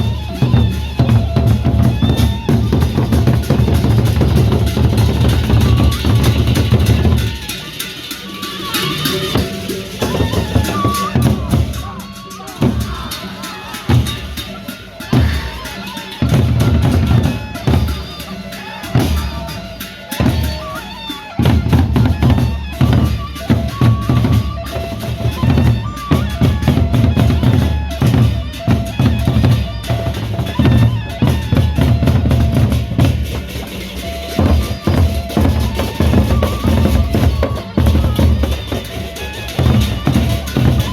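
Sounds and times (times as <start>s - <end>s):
bass and snare drums beating: 0.0s - 15.6s, 16.2s - 18.3s, 21.4s - 40.9s
procession band music: 0.0s - 40.9s.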